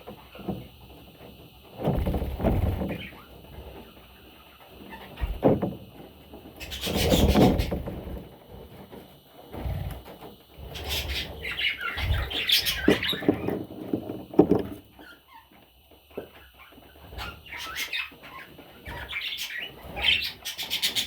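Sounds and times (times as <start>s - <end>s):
rubbing and bumping handling noises: 0.0s - 17.5s.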